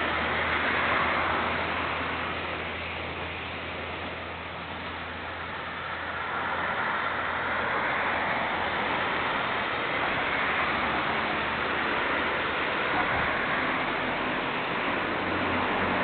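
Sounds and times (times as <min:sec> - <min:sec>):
railcar engine drone: 0:00.0 - 0:16.0
wheel and rail rushing noise: 0:00.0 - 0:16.0.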